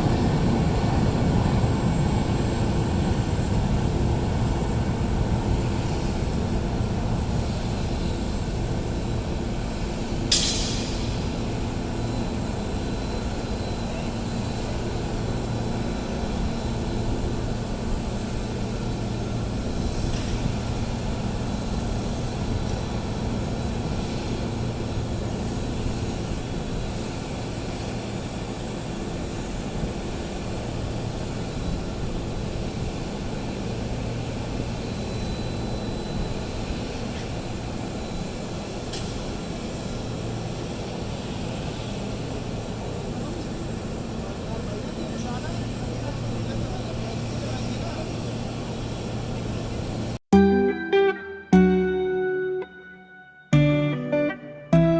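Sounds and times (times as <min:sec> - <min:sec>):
aircraft rumble and hum: 0:00.0 - 0:50.3
sharp hiss: 0:10.3 - 0:11.6.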